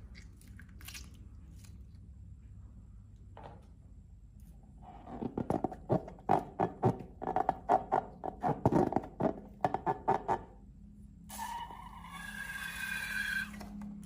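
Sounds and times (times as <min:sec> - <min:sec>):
slime squelching by hand: 0:00.0 - 0:02.2.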